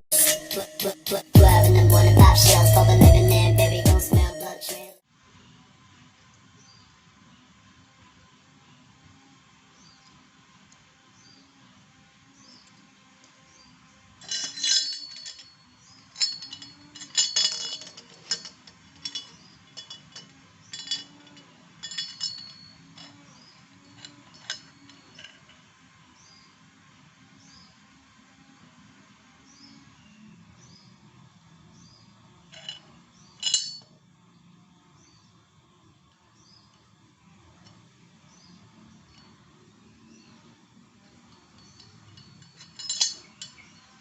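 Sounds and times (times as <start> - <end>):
sharp ringing clinks and knocks: 14.2 - 25.7, 32.5 - 34.0, 39.0 - 39.6, 41.2 - 44.0.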